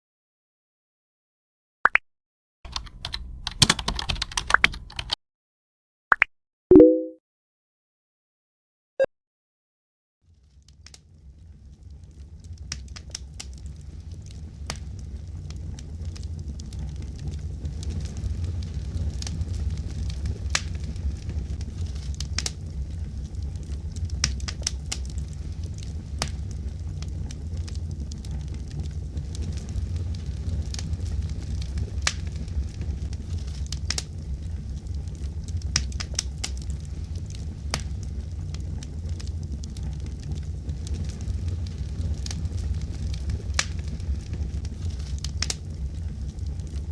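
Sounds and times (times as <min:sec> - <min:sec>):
low rumble of fire: 0:10.3 - 0:46.9
wood fire crackling and popping: 0:10.6 - 0:46.9.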